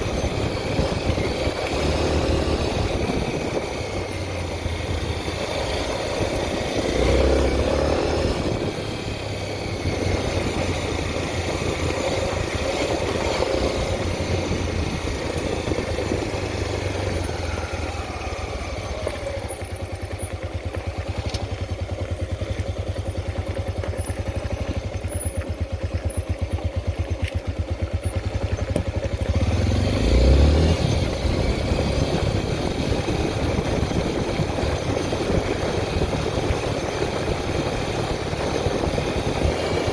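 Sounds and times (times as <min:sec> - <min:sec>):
motorcycle engine thumping: 0:19.0 - 0:29.4.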